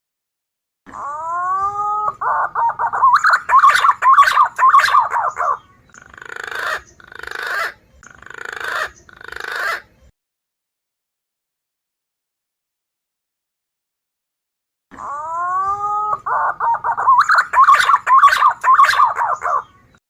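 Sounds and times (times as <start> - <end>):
recorded pigeon calls: 0.9 - 10.0, 15.0 - 20.0.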